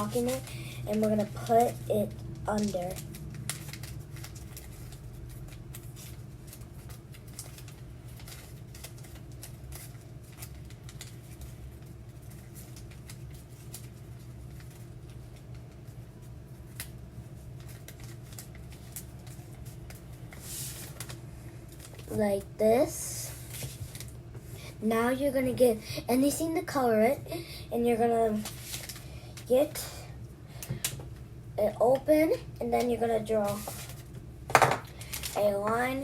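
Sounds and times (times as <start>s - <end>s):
paper crinkling and tapping: 0.0s - 22.2s, 23.5s - 24.2s, 28.3s - 29.5s, 32.7s - 36.0s
paper rustle: 0.0s - 22.3s, 23.2s - 24.2s, 28.2s - 29.1s, 32.8s - 34.1s
steady low hum: 0.0s - 36.0s.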